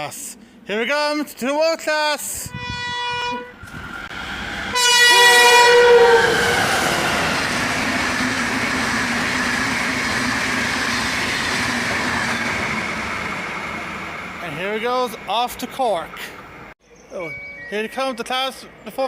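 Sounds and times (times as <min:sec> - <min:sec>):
locomotive two-tone horn: 0:02.4 - 0:03.6, 0:04.7 - 0:07.1
train rumbling past: 0:02.4 - 0:16.8.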